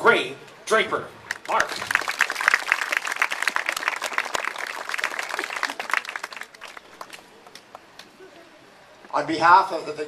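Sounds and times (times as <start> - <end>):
crowd applauding: 1.3 - 7.8.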